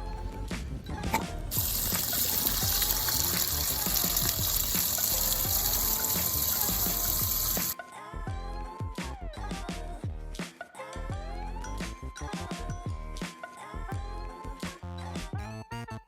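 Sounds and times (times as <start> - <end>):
background music with melody: 0.0 - 16.0
loud steady hiss: 1.5 - 7.8.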